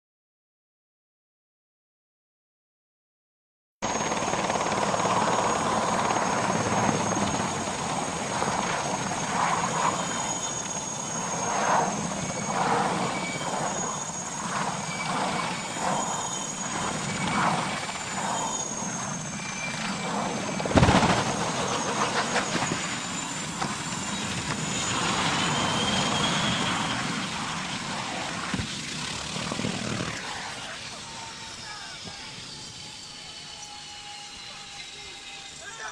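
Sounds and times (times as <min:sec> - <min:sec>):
helicopter rotor and turbine whine: 0:03.8 - 0:35.9
sharp loud thump: 0:20.7 - 0:21.2.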